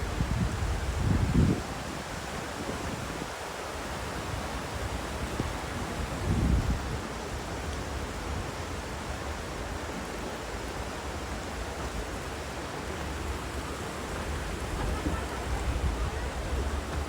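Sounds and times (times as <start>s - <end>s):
wind buffeting microphone: 0.0s - 3.5s, 4.1s - 7.4s, 11.9s - 17.0s.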